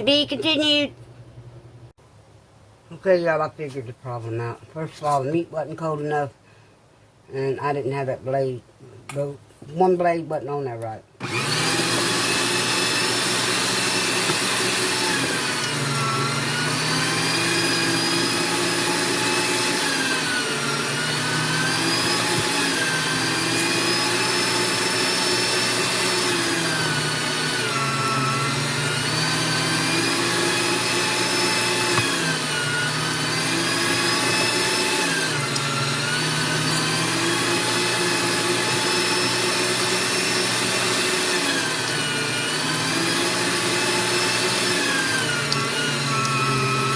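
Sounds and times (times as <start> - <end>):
electric meat grinder motor: 11.2 - 46.9.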